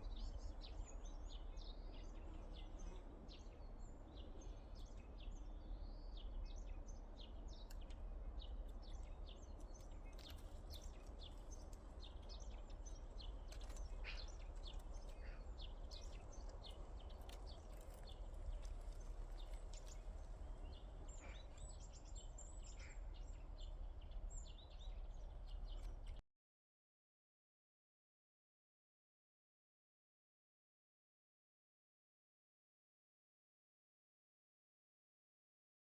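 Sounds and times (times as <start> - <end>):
small birds chirping: 0.0 - 26.2.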